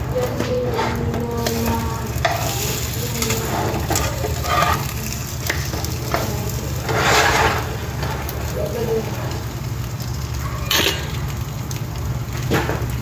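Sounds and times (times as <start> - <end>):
bread sizzling in a pan: 0.0 - 13.0
metal spatula scraping pan: 0.7 - 8.5.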